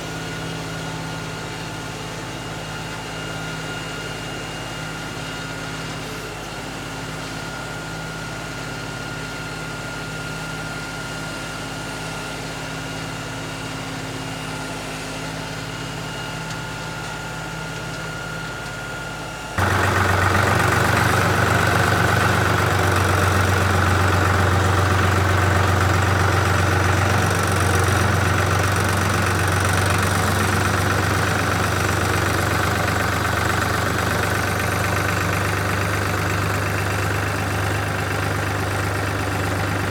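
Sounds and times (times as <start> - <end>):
engine idling: 19.6 - 39.9.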